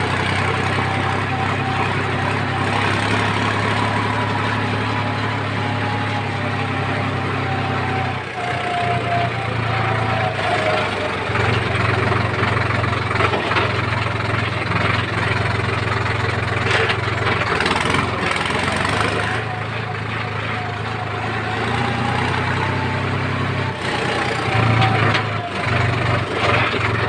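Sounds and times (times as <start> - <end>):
diesel engine running: 0.0 - 27.0
rough noisy mechanical sound: 0.0 - 27.0.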